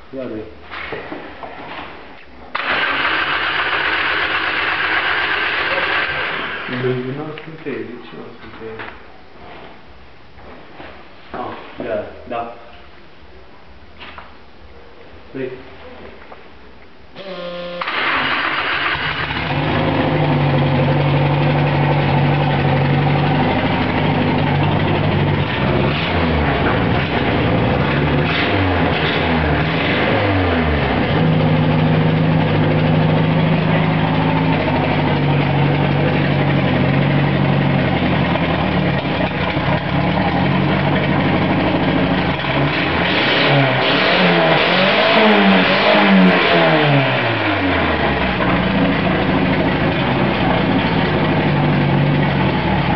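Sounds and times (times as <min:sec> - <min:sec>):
car engine starting and idling: 0:02.5 - 0:07.2, 0:17.2 - 0:52.9
engine revving: 0:02.6 - 0:06.8, 0:17.2 - 0:52.9.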